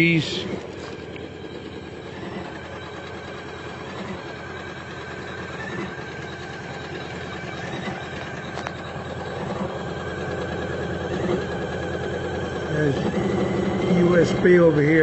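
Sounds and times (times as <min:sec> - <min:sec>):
embroidery machine stitching: 0:00.0 - 0:15.0.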